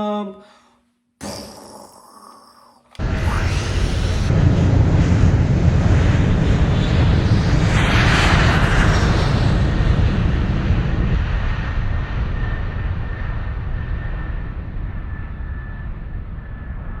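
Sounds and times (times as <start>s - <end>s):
airplane flyby rush: 3.0s - 15.0s.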